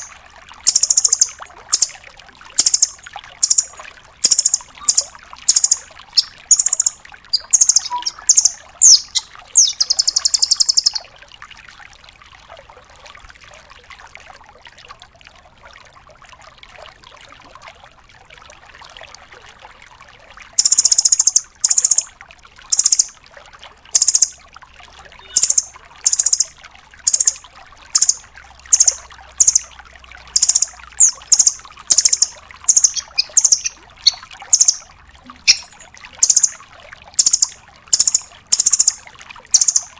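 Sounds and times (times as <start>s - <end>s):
bird sharp high-pitched calls: 0.0s - 2.0s, 2.6s - 11.0s, 20.6s - 22.1s, 22.7s - 23.1s, 24.0s - 24.3s, 25.2s - 26.5s, 27.1s - 27.4s, 28.0s - 29.7s, 30.4s - 36.6s, 37.2s - 39.9s
bird rattling trill: 0.7s - 1.9s, 2.6s - 11.0s, 20.6s - 22.0s, 22.7s - 23.1s, 25.2s - 26.5s, 27.1s - 27.4s, 28.0s - 29.7s, 30.4s - 34.9s, 35.5s - 36.6s, 37.2s - 39.9s.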